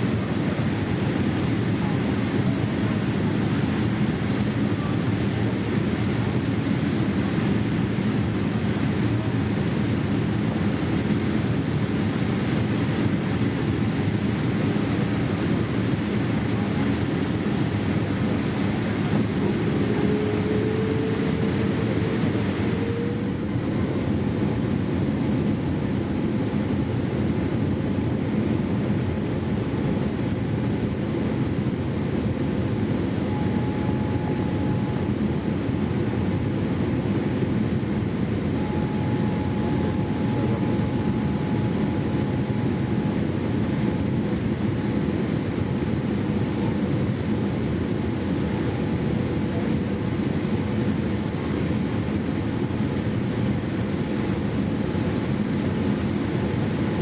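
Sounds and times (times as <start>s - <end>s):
airliner cabin noise: 0.0s - 57.0s
faint rising whine: 18.8s - 23.7s, 33.0s - 35.5s, 37.4s - 44.6s
faint steady tone: 33.2s - 35.1s, 38.5s - 44.0s.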